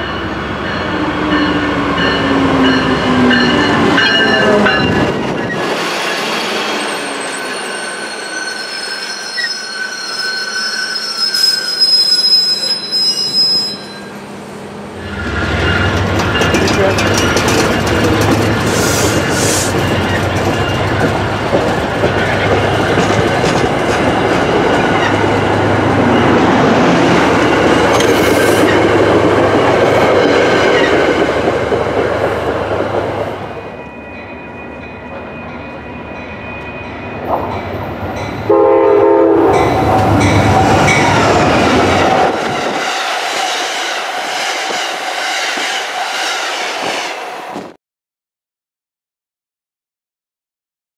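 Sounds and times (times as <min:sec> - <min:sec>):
second train lighter rumble: 0:12.4 - 0:47.8
train wheels clattering over joints: 0:15.5 - 0:25.2
train horn blast: 0:38.5 - 0:40.6.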